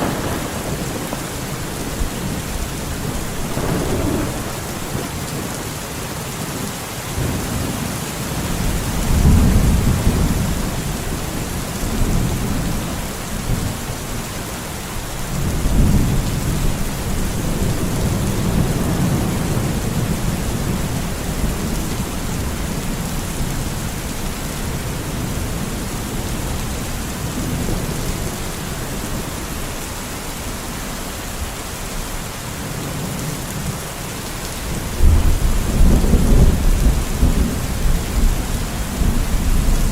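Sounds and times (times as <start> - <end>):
thunder rolling: 0.0 - 5.8
steady rain falling: 0.0 - 39.9.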